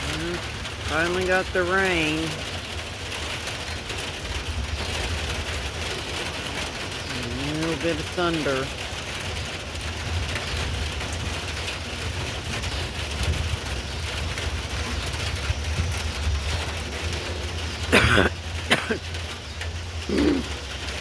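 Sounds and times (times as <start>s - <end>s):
steady rain: 0.0s - 21.0s
wind rumbling on microphone: 8.8s - 18.0s
person coughing: 17.9s - 19.0s, 20.1s - 20.5s.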